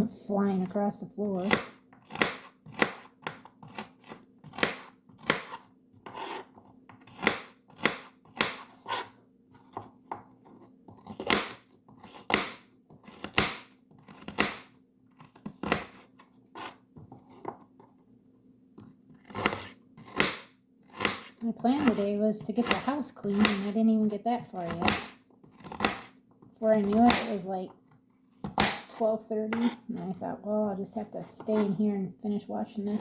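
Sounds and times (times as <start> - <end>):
knife chopping on cutting board: 1.4 - 10.3, 10.9 - 14.7, 15.3 - 17.6, 18.8 - 23.7, 24.6 - 27.4, 28.4 - 29.8.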